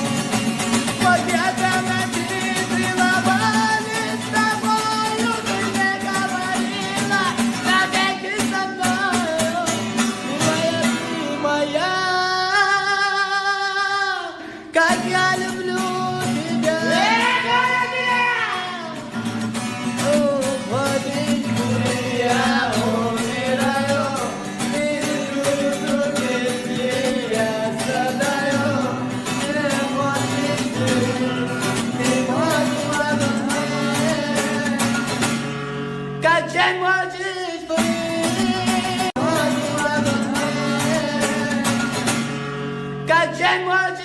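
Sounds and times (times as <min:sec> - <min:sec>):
person singing: 0:00.0 - 0:35.4, 0:36.1 - 0:42.2
guitar backing: 0:00.0 - 0:44.0.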